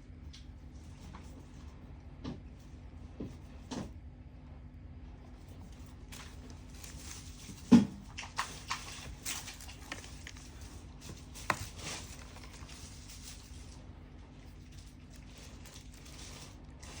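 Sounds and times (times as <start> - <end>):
packaging crinkling: 5.7 - 17.0.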